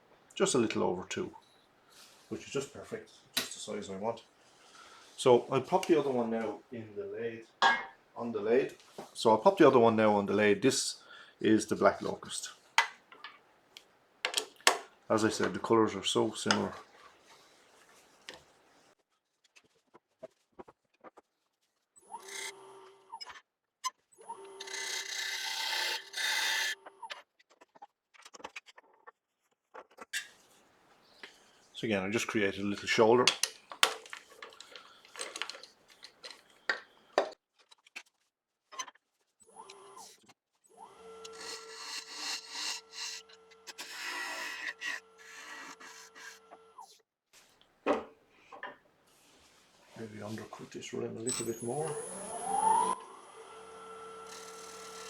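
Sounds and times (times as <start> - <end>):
turning tool cutting wood: 22.2 - 23.1, 24.4 - 27.0, 40.8 - 46.8, 51.2 - 55.0
wood lathe spinning: 24.4 - 27.0, 40.8 - 46.8, 51.4 - 55.0
lathe hum and high whine: 51.3 - 55.0.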